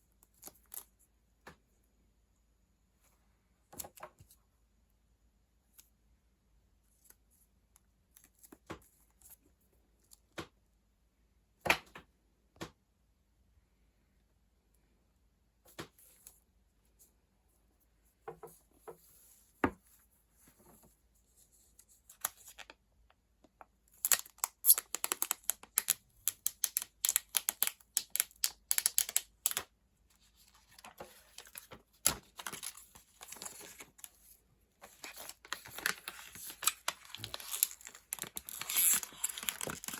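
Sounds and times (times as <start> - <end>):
soft paper crinkling: 23.9 - 39.9
packaging wrap crackling and tearing: 24.0 - 29.6, 34.8 - 39.9.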